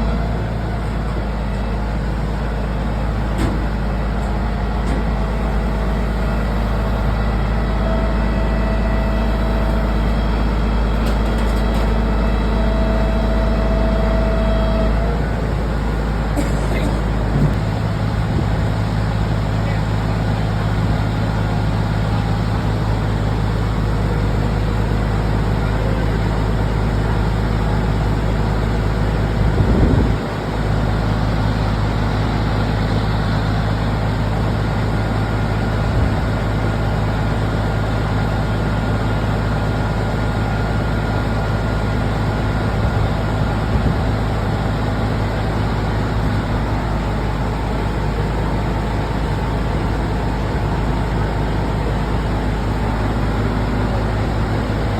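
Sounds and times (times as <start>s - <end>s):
vehicle engine and road noise: 0.0s - 54.9s.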